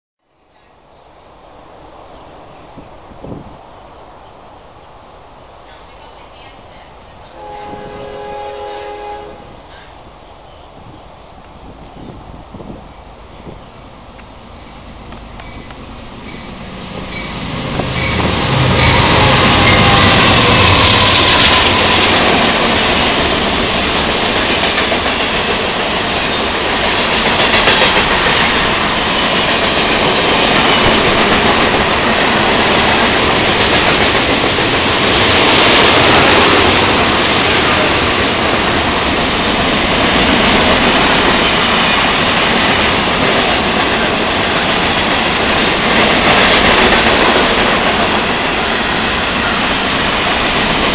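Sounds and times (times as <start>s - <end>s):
diesel locomotive engines rumbling: 0.8s - 50.9s
freight cars rattling over rails: 14.6s - 50.9s.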